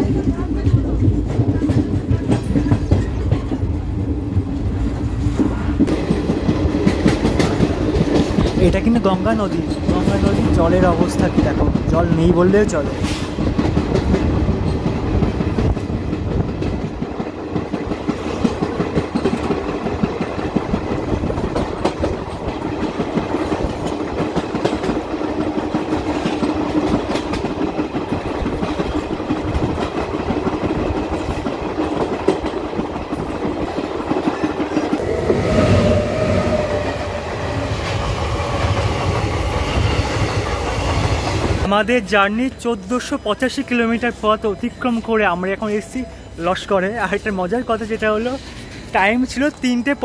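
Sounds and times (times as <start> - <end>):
wheel and rail clatter: 0.0 - 42.1
steady higher tone: 34.9 - 39.9.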